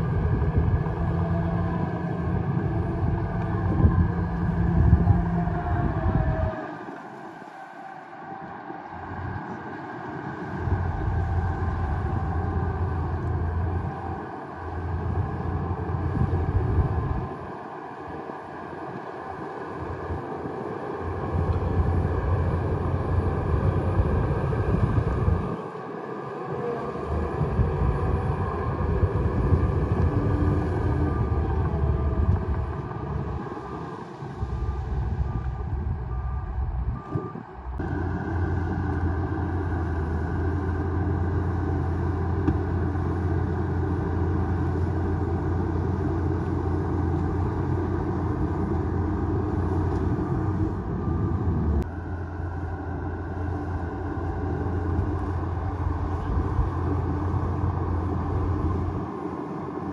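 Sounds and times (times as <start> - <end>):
bulldozer diesel engine running: 0.0 - 7.6, 8.4 - 59.9
faint beeps: 34.5 - 38.2.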